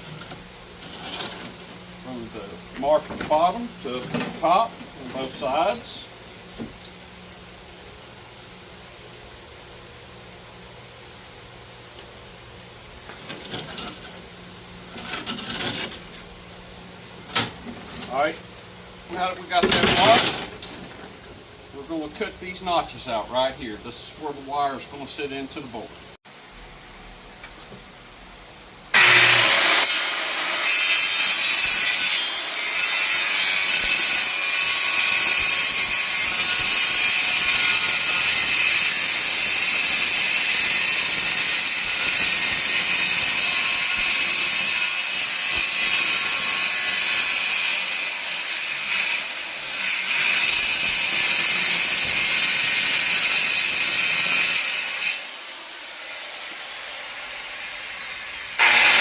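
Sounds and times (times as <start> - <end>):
power saw cutting wood: 28.9 - 59.0.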